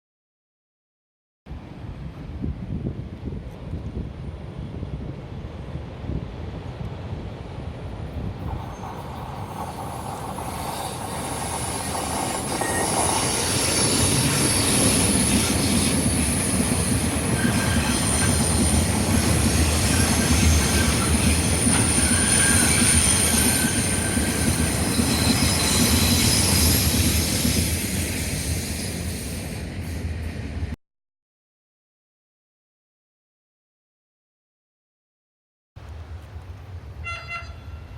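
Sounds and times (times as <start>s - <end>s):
freight train wheels rumbling and clacking: 3.1s - 30.8s
high wheel squeal: 8.6s - 16.6s, 17.2s - 29.4s.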